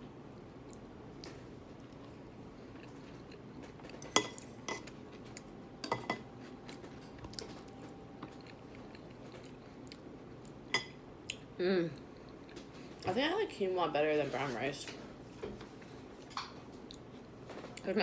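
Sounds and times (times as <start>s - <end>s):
cutlery clinking against dish: 5.8s - 6.3s.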